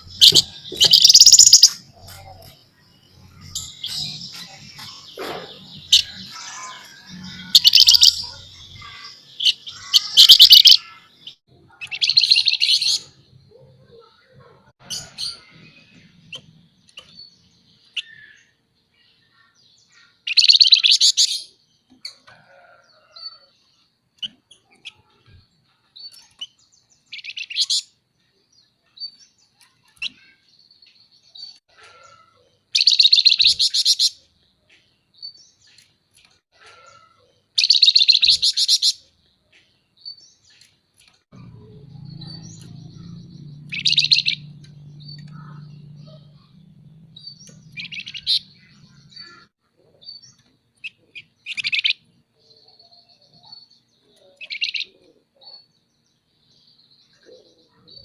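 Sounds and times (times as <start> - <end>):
songbird buzzy trills: 0.0 - 13.3, 41.4 - 49.6
bird chirps: 0.0 - 23.5, 24.2 - 35.9, 36.6 - 58.0.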